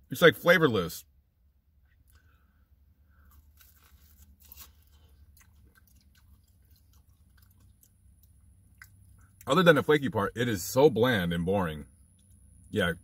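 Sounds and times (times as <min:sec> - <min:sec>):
faint chewing of crunchy pastry: 0:01.8 - 0:09.5.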